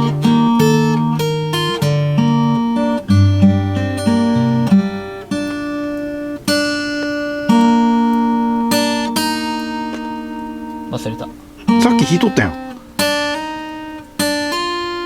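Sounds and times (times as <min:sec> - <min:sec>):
acoustic guitar strummed slowly: 0:00.0 - 0:15.0.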